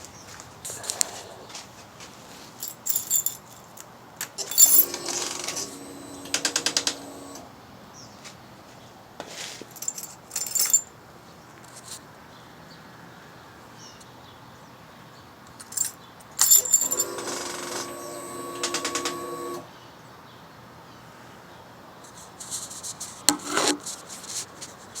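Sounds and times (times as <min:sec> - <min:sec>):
keys jangling: 0:02.6 - 0:05.0, 0:09.7 - 0:10.9, 0:15.6 - 0:18.0.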